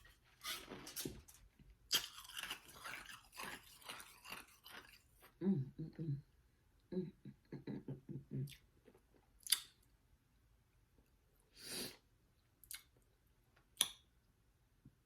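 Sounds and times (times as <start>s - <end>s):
soft chewing: 0.0s - 6.2s, 7.8s - 9.9s, 12.4s - 14.0s
wet mouth clicks and smacks: 9.4s - 9.8s, 12.6s - 13.0s, 13.8s - 14.0s.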